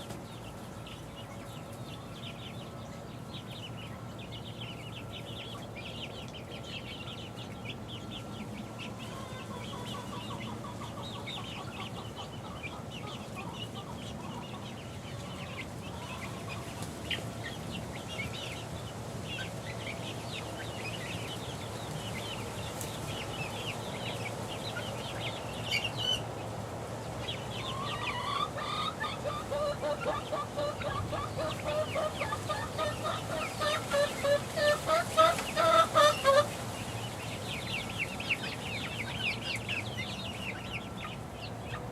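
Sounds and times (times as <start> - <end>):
chicks cheeping: 0.0 - 41.9.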